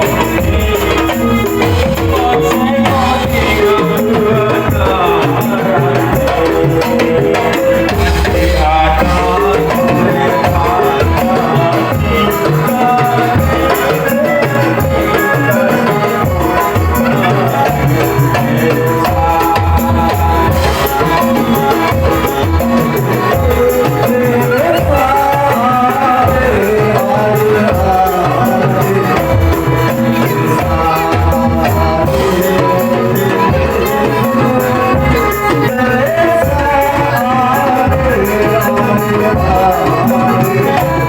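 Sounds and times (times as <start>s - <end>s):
drumming: 0.0s - 41.0s
rattling percussion: 0.0s - 41.0s.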